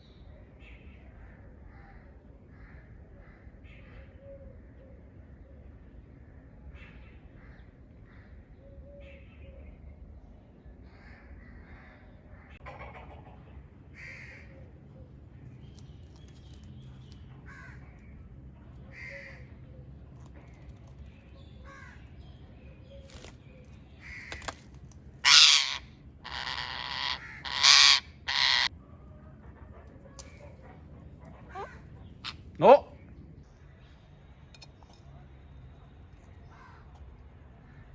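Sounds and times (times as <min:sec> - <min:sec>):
parrot squawking: 0:25.2 - 0:28.7.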